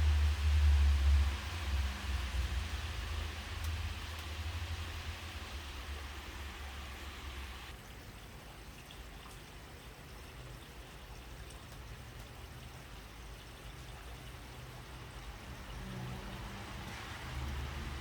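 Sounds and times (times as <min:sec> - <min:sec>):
rain falling: 0:00.0 - 0:08.0, 0:14.1 - 0:18.0.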